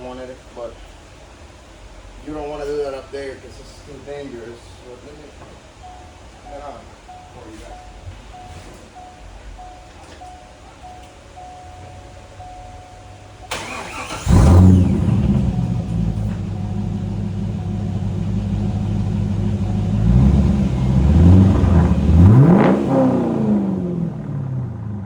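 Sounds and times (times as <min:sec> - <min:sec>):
car engine idling and revving: 0:11.6 - 0:25.0
starter motor cranking: 0:13.5 - 0:16.0.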